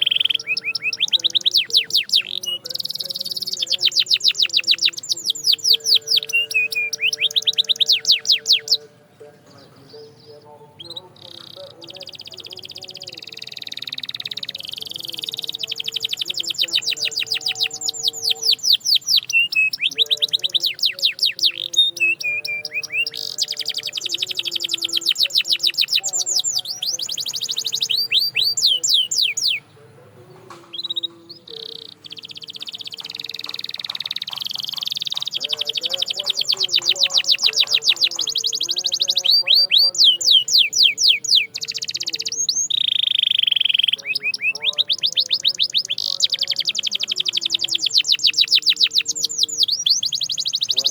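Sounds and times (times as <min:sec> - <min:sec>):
canary singing trills: 0:00.0 - 0:50.9.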